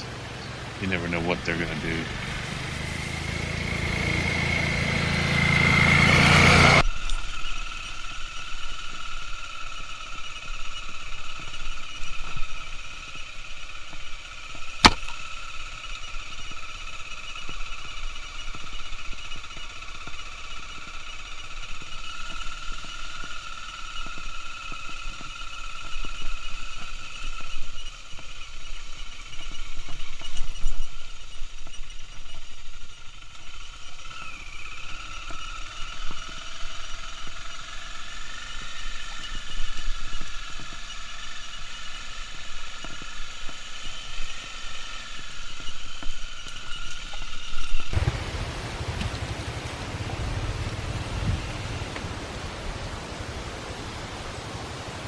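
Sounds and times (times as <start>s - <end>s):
motorcycle engine: 0.0s - 55.0s
wind noise: 47.7s - 55.0s.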